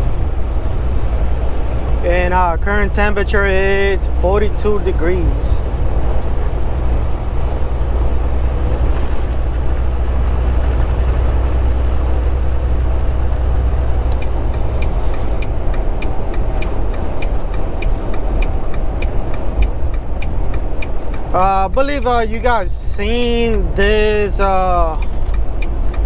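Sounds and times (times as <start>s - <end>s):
truck engine and road rumble: 0.0s - 26.0s
turn signal clicking: 13.7s - 22.1s, 23.6s - 26.0s.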